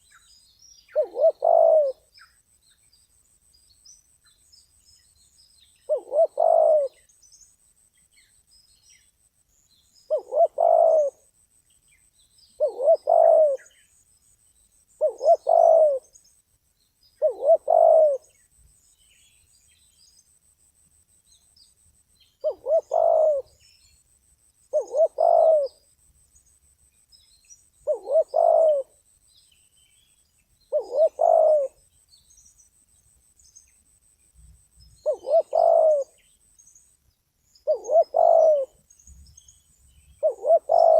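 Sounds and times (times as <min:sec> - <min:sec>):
faint small bird chirps: 0:00.0 - 0:40.9
dove cooing: 0:00.9 - 0:02.1, 0:05.9 - 0:07.0, 0:10.1 - 0:11.3, 0:12.6 - 0:13.7, 0:15.0 - 0:16.1, 0:17.2 - 0:18.3, 0:22.4 - 0:23.6, 0:24.7 - 0:25.8, 0:27.8 - 0:29.0, 0:30.7 - 0:31.8, 0:35.0 - 0:36.2, 0:37.6 - 0:38.8, 0:40.2 - 0:40.9.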